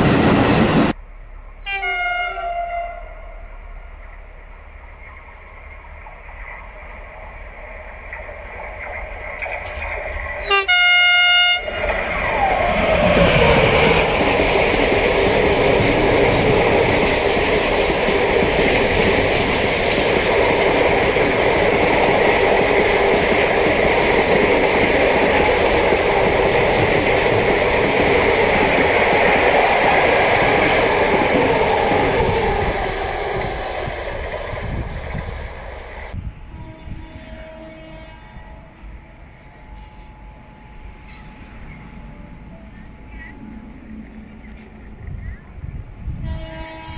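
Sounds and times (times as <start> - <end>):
train wagons rumbling and clattering: 0.0 - 1.8, 3.1 - 46.9
locomotive whine: 0.0 - 46.9
train horn blast: 1.6 - 3.6, 10.4 - 12.0, 36.1 - 40.2, 46.0 - 46.9.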